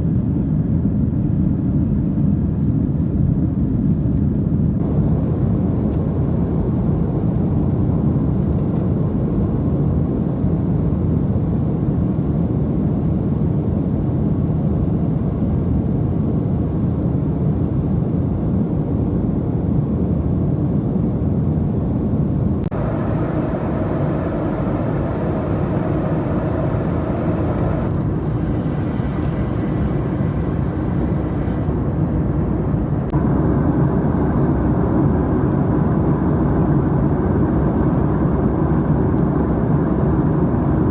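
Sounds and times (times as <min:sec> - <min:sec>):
jet engine and airflow rushing: 0:04.8 - 0:40.9
faint high steady tone: 0:22.7 - 0:40.9.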